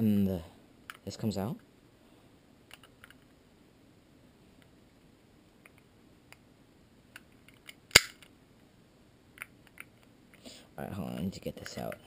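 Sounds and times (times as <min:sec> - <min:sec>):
small metal and plastic parts clicking: 0:02.7 - 0:03.3
sharp loud click: 0:07.9 - 0:08.2.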